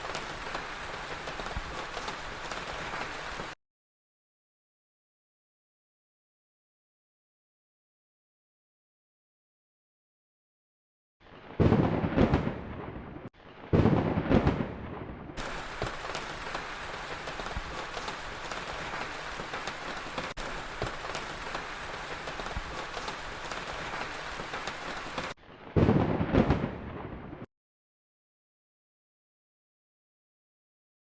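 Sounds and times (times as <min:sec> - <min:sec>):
heavy rain: 0:00.0 - 0:03.6, 0:15.4 - 0:27.5
thunder claps: 0:00.0 - 0:03.6, 0:11.4 - 0:27.5.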